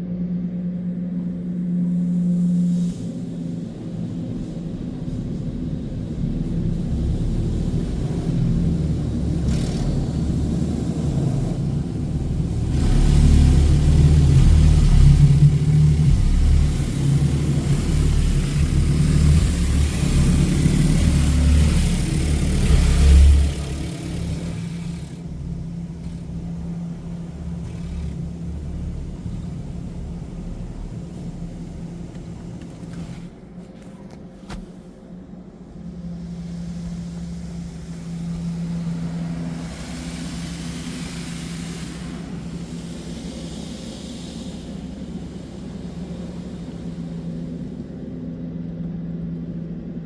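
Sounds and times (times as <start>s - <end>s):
car wash low rumble: 0.0s - 50.0s
loud rushing water: 10.5s - 25.1s.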